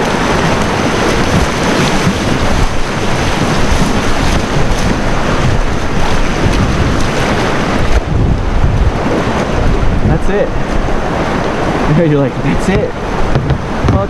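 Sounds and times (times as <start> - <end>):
kayak paddle splashes: 0.0 - 14.0
rushing whitewater: 0.0 - 14.0
wind buffeting the microphone: 0.0 - 14.0.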